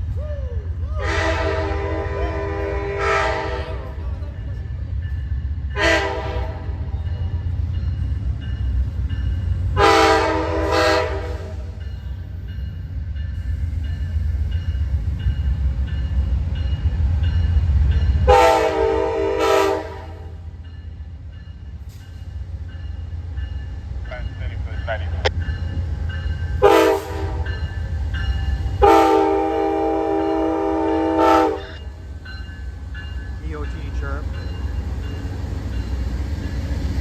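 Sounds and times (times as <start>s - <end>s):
passing train rumble: 0.0s - 37.0s
locomotive air horn blasts: 1.0s - 3.8s, 5.8s - 6.8s, 9.8s - 11.8s, 18.3s - 20.4s, 26.6s - 27.5s, 28.8s - 31.8s.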